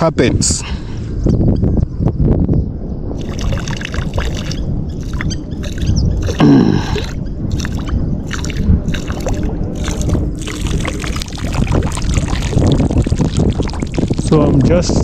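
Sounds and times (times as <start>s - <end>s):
low rumble: 1.3s - 15.0s
urine splashing into water: 3.2s - 15.0s.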